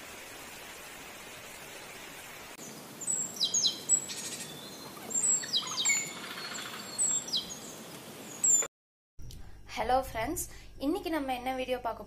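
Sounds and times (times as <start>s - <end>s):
songbirds chirping: 2.6s - 8.7s
bird trill: 3.1s - 7.6s.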